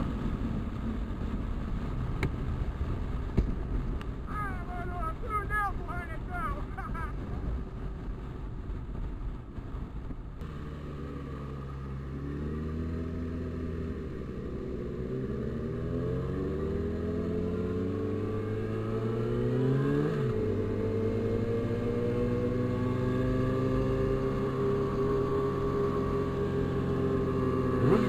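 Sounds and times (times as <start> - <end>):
vehicle engine accelerating: 6.9 - 28.0.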